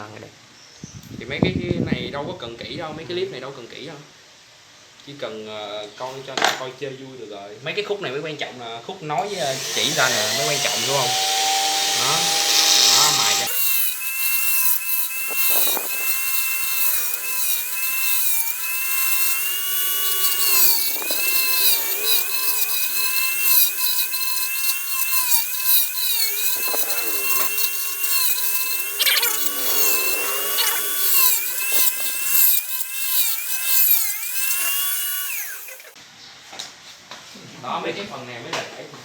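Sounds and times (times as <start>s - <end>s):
rotary grinder grinding plastic: 9.2s - 36.0s.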